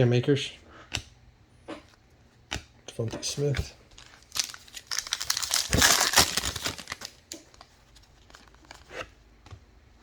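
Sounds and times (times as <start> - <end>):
foil wrapper tearing: 4.0 - 7.6.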